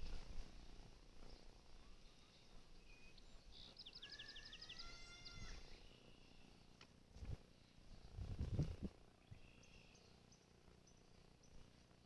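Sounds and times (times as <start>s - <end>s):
quiet outdoor hush: 0.0s - 12.0s
songbird singing: 1.3s - 6.7s, 8.5s - 11.7s.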